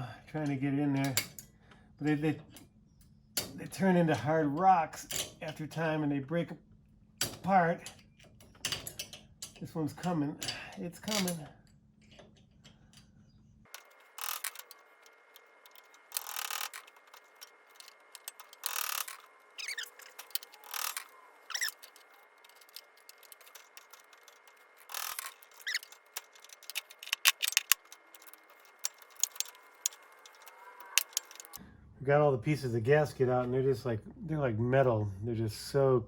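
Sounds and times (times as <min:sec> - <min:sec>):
sharp clicks: 0:13.7 - 0:31.6
tool scraping gaskets: 0:13.7 - 0:31.6.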